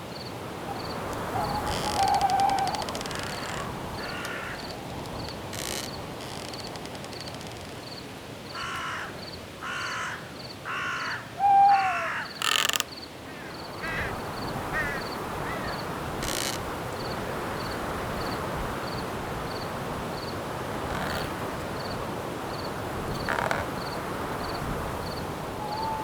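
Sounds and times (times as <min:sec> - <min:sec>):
crickets chirping: 0:00.0 - 0:26.0
wind in the trees: 0:00.0 - 0:26.0
crows cawing: 0:01.1 - 0:04.9, 0:08.5 - 0:16.5, 0:25.6 - 0:26.0.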